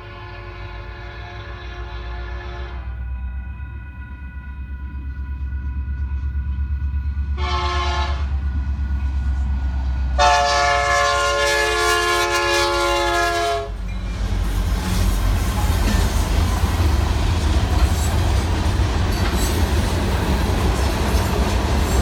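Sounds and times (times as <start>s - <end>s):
locomotive air horn blasts: 0.0s - 3.1s, 7.4s - 8.4s, 10.2s - 13.8s
train engine and wheels rumbling: 0.0s - 22.0s.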